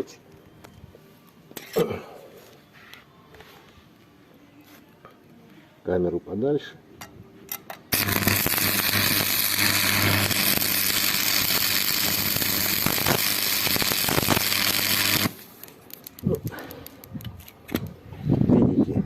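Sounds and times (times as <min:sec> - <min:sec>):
welding arc crackling hiss: 0:07.9 - 0:16.6.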